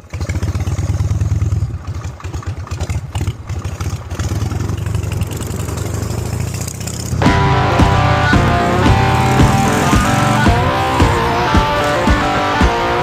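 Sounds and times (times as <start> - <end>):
motorcycle engine running: 0.0 - 13.0
music: 7.2 - 13.0.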